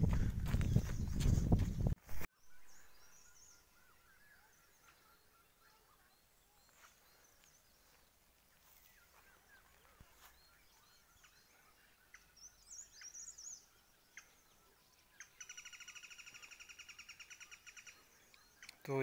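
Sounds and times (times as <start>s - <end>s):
faint bird chirps: 2.4s - 19.0s
high bird warble: 8.6s - 19.0s.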